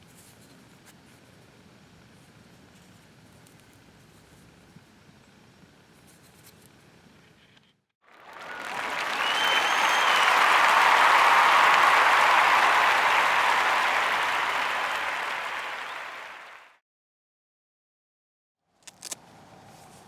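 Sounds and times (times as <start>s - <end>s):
crowd applause: 8.1s - 16.8s
short whistle: 8.4s - 13.2s.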